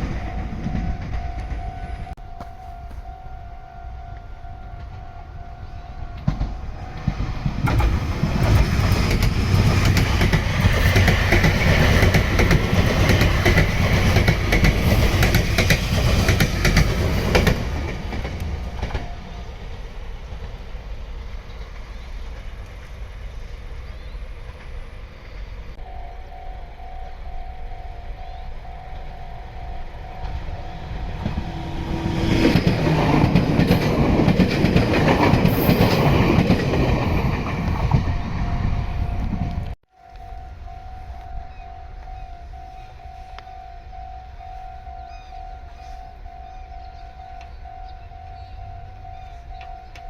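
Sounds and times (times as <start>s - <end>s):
level crossing alarm ringing: 0.0s - 7.1s, 25.8s - 33.4s, 37.8s - 50.0s
train wheels clicking over rail joints: 6.2s - 19.4s, 31.0s - 38.4s.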